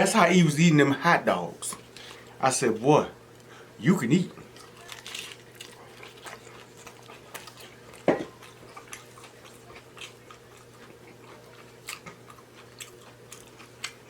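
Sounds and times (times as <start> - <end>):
close chewing of food: 4.3 - 14.0.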